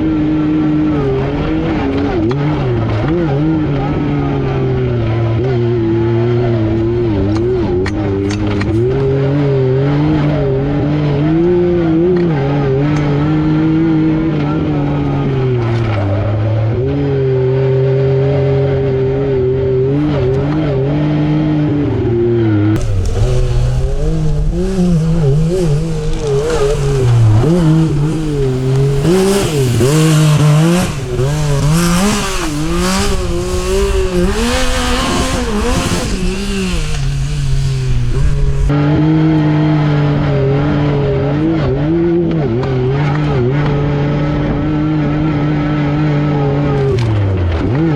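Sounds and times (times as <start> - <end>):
engine revving through gears: 0.0 - 47.9
wind noise: 22.7 - 39.1.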